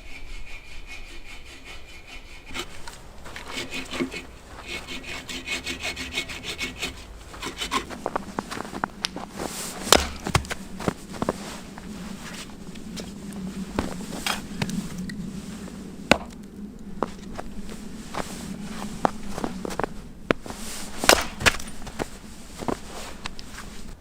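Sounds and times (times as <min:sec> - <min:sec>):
hand saw cutting wood: 0:00.0 - 0:08.8, 0:09.4 - 0:10.6, 0:20.9 - 0:21.7
wood snapping and knocking: 0:09.9 - 0:10.6, 0:16.1 - 0:16.4, 0:21.1 - 0:22.0.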